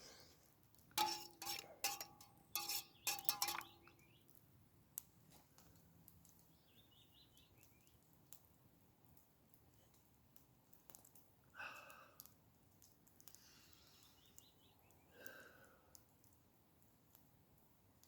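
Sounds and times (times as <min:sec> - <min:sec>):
metal cookware clinking: 0:01.0 - 0:04.0.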